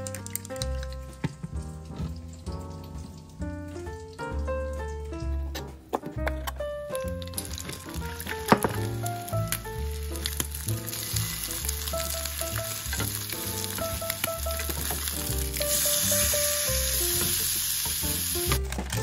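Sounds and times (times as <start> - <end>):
soft background music: 0.0 - 19.0
food sizzling in oil: 7.1 - 19.0.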